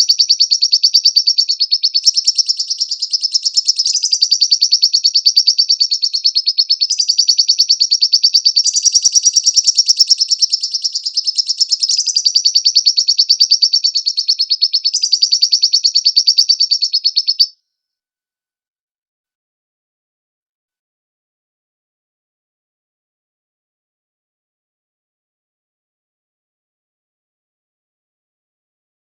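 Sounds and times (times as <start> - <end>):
lovebird chattering trill: 0.0 - 17.6.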